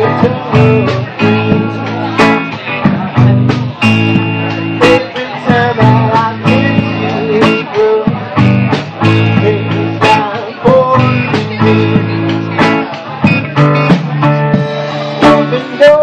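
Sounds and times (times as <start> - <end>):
blues-rock band playing: 0.0 - 16.0
electric guitar lead lines: 0.0 - 16.0
drum hits: 5.5 - 15.5.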